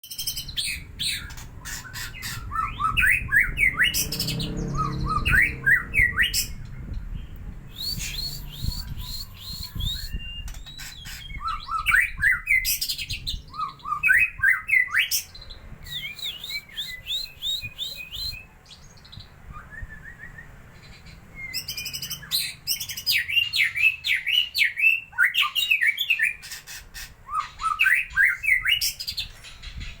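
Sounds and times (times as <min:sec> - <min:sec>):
bird singing whistled notes and clicks: 0:00.1 - 0:18.4.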